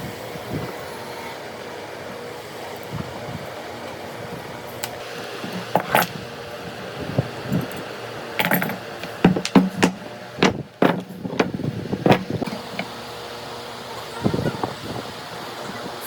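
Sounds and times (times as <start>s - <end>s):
steady background hum: 0.0s - 16.0s
sharp knocks and taps: 8.4s - 12.9s.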